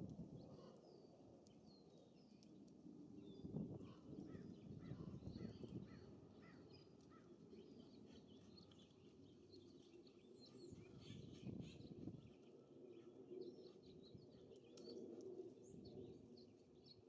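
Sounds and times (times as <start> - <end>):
wind rumble on microphone: 0.0 - 0.7, 2.9 - 6.3, 10.7 - 12.4.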